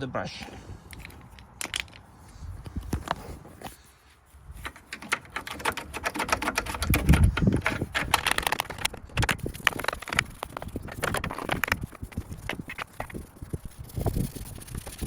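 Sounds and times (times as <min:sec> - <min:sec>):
brush scrubbing plastic: 0:03.2 - 0:15.0.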